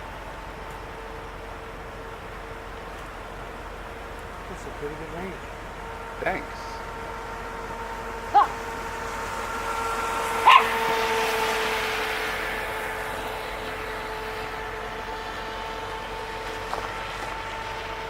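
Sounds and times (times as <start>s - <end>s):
boat hissing past: 0.0s - 18.0s
electric motor whine: 0.0s - 18.0s
dog barking: 8.3s - 8.6s, 10.4s - 10.9s
faint yip: 8.4s - 8.6s, 10.4s - 10.7s.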